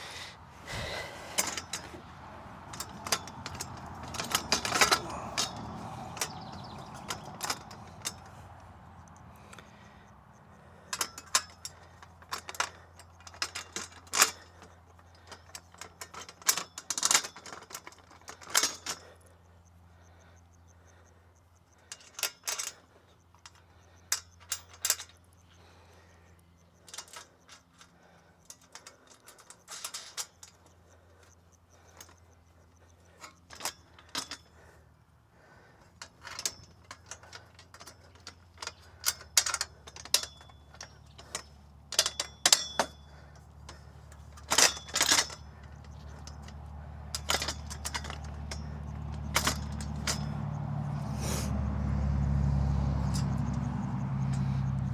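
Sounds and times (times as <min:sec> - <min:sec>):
metal hardware clinking and clanking: 0:00.7 - 0:08.4, 0:10.9 - 0:19.0, 0:28.5 - 0:30.8, 0:33.1 - 0:34.6, 0:35.9 - 0:51.1, 0:53.0 - 0:54.9.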